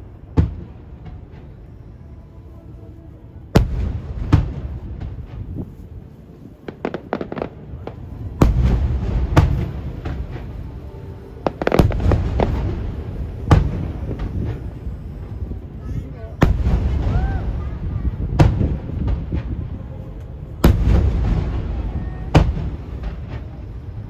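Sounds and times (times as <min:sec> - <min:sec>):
low rumble: 0:07.7 - 0:24.0.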